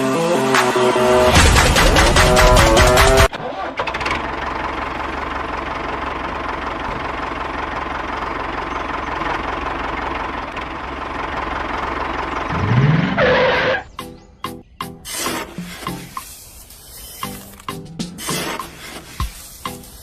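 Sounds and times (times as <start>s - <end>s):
small model motor running: 16.6s - 17.6s.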